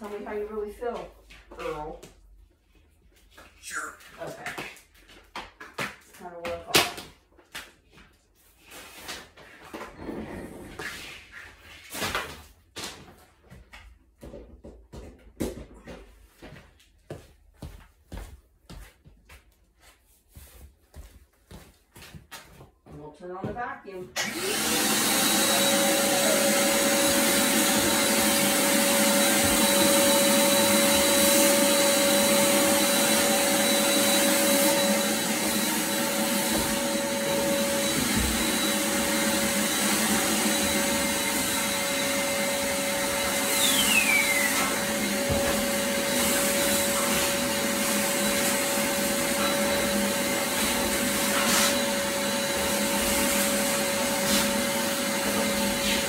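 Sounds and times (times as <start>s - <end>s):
vacuum cleaner running: 23.4s - 56.0s
falling whistle: 43.6s - 44.7s.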